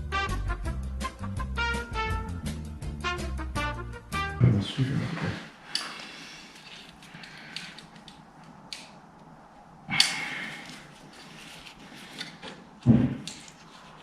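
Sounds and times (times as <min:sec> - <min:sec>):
tool clicks and scrapes: 0:05.7 - 0:08.2.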